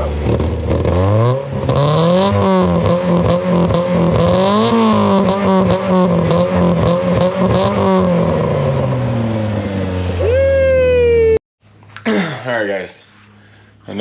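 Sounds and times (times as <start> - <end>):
car engine revving in blips: 0.0 - 10.3.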